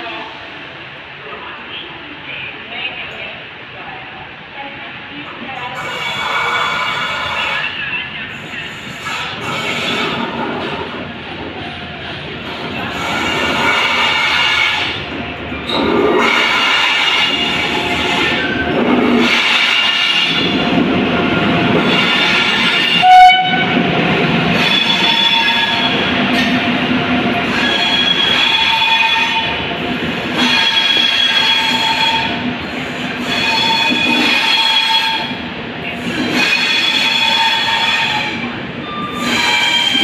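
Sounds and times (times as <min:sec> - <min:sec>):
rumble of train coaches: 0:00.0 - 0:40.0
train wheels squealing: 0:27.5 - 0:29.4, 0:33.2 - 0:35.2, 0:36.3 - 0:40.0.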